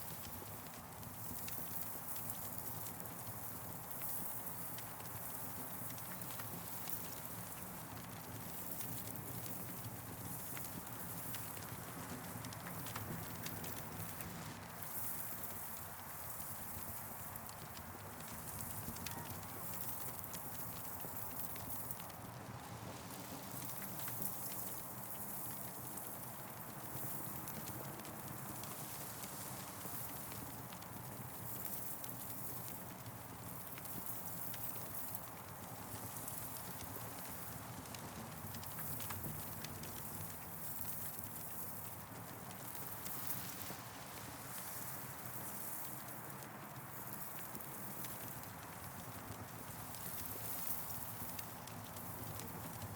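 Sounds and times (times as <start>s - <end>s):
campfire crackling: 0.0s - 52.9s
fire snaps and pops: 0.1s - 52.9s.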